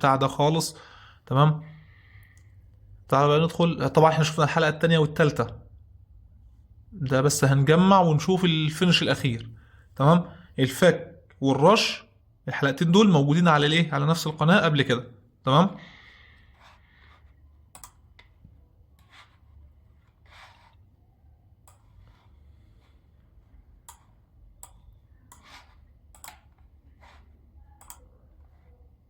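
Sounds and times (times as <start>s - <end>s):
low steady hum: 0.0s - 29.0s
faint irregular clicks: 16.6s - 18.4s, 21.6s - 22.3s, 23.8s - 26.8s, 27.8s - 28.1s
short scraping strokes: 19.0s - 20.9s.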